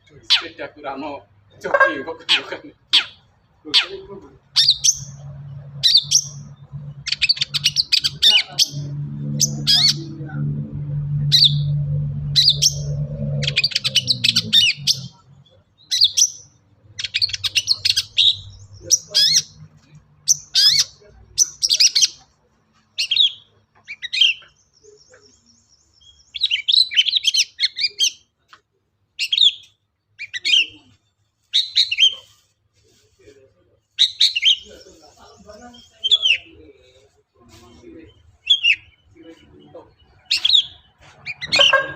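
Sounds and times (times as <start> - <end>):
bird chattering song: 0.0 - 10.2, 11.2 - 28.3, 29.2 - 32.5, 33.8 - 41.9
fast high bird trill: 40.4 - 41.9.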